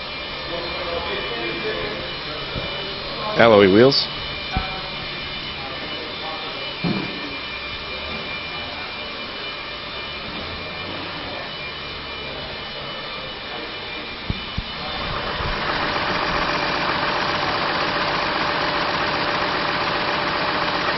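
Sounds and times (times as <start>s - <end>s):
car engine idling: 14.6s - 20.9s.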